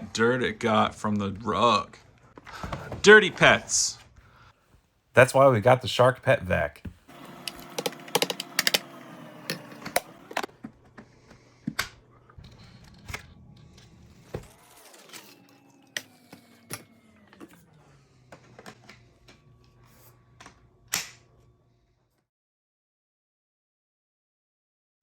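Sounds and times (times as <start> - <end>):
vacuum cleaner motor whine: 7.1 - 11.5, 12.6 - 22.0
sharp clicks and rattles: 7.4 - 8.9.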